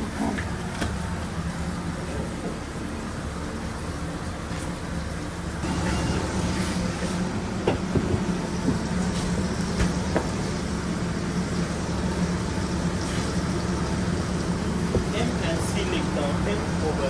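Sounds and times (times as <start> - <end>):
kitchen machinery hum and hiss: 0.0 - 17.0.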